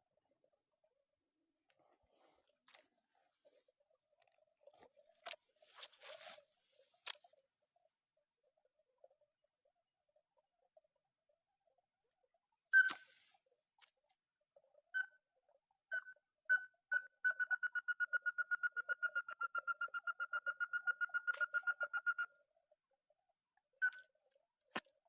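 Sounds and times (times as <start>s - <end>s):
crake calling piping notes: 12.7s - 13.3s, 15.9s - 22.4s.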